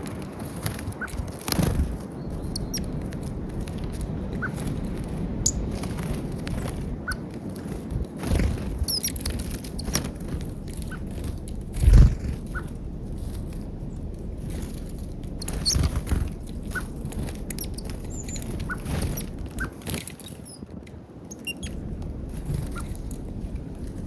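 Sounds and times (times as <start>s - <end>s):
birds chirping: 0.0s - 24.0s
scattered clicks: 0.0s - 24.0s
steady low rumble: 0.0s - 24.0s
low thumps: 7.8s - 19.8s, 21.5s - 24.0s.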